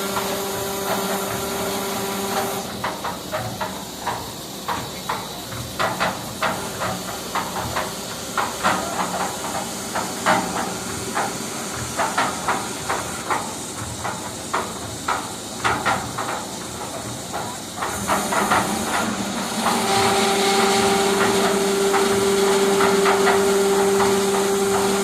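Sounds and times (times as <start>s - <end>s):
steady hiss: 0.0s - 25.0s
clacks and knocks: 2.4s - 25.0s
machine hum: 18.2s - 25.0s.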